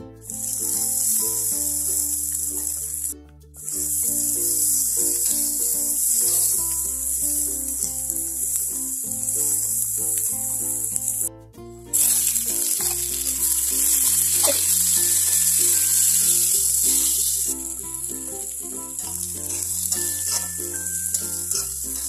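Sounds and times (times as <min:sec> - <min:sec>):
background music: 0:00.0 - 0:22.0
food sizzling in oil: 0:03.7 - 0:07.2, 0:12.0 - 0:17.7, 0:19.0 - 0:22.0
metal spatula scraping pan: 0:19.0 - 0:22.0.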